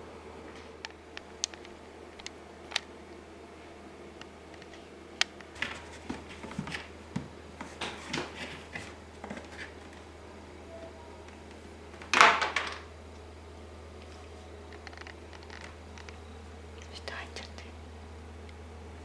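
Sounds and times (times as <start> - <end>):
scratchy rustling: 5.6 - 6.8.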